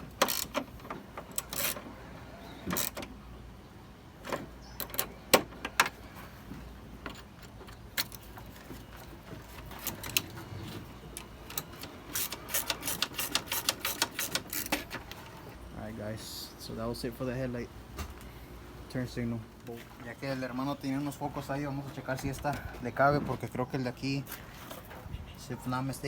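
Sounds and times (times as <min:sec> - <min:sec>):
hand tools clicking on bolts: 0:00.1 - 0:01.8, 0:11.1 - 0:15.2.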